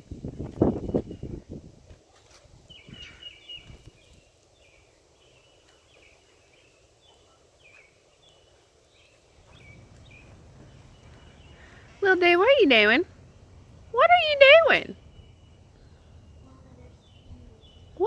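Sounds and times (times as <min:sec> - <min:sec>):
small bird chirping: 0:02.7 - 0:18.0
low background rumble: 0:09.4 - 0:18.0.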